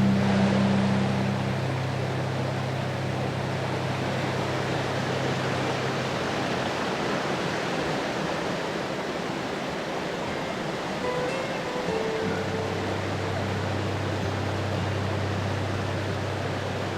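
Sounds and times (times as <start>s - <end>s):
low held tones: 0.0s - 7.0s, 11.0s - 16.9s
falling water rushing: 0.0s - 16.9s.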